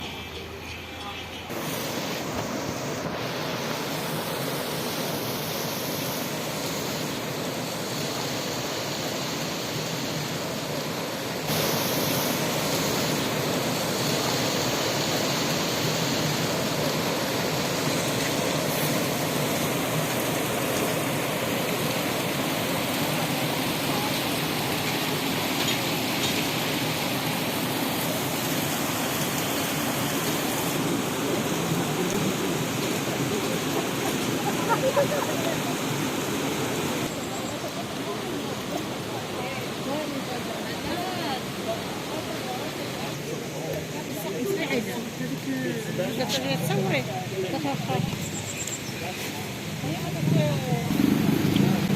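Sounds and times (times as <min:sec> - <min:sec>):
waterfall rushing: 0:01.4 - 0:51.9.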